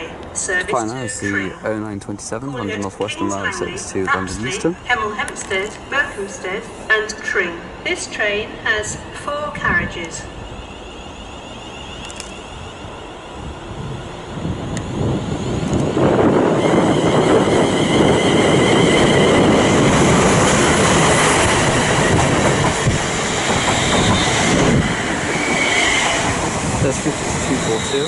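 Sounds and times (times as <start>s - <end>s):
high even train whine: 0.0s - 28.0s
train wheels rumbling on rail: 3.9s - 28.0s.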